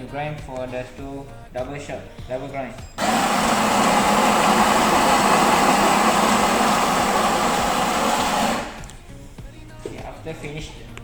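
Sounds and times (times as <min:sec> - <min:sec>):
electric coffee grinder grinding: 0:03.0 - 0:09.0.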